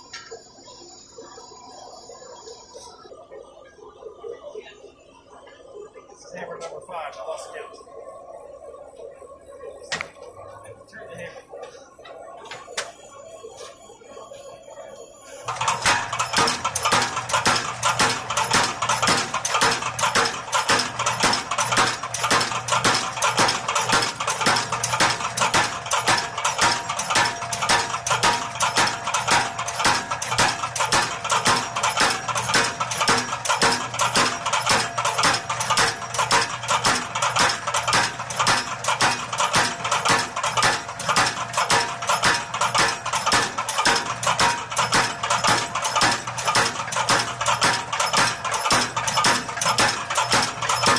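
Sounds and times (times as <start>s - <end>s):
power hammer striking steel: 15.5s - 50.9s.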